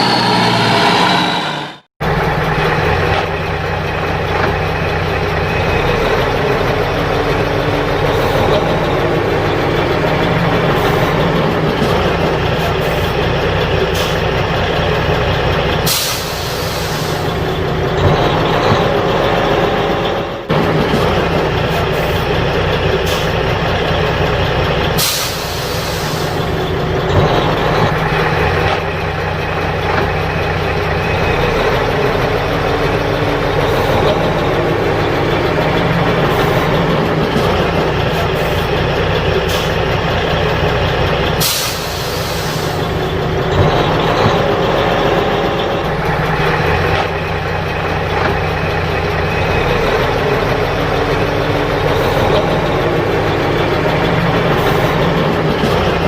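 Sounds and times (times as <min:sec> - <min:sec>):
diesel truck engine running: 0:00.0 - 0:56.0
loud air hisses: 0:15.9 - 0:17.3, 0:25.0 - 0:26.4, 0:41.4 - 0:43.0.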